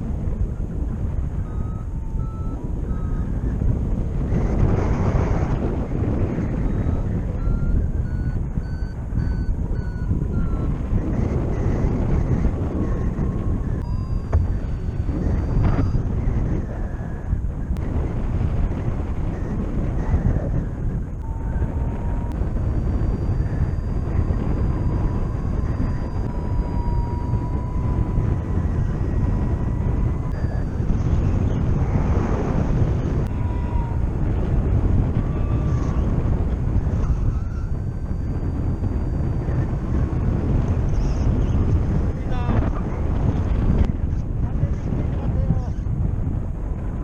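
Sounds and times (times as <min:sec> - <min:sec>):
long steady electronic tone: 0:00.0 - 0:43.9
variometer beeping: 0:00.0 - 0:44.0
wind on microphone: 0:00.0 - 0:47.0
faint high tone: 0:21.2 - 0:31.9, 0:35.0 - 0:40.3.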